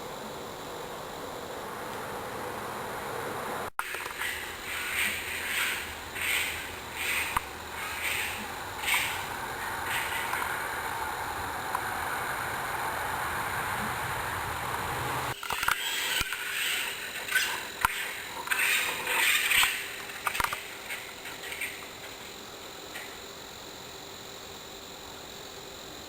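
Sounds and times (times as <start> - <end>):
steady rushing noise: 0.0 - 15.4
animal screeching calls: 3.9 - 10.7, 15.6 - 19.9.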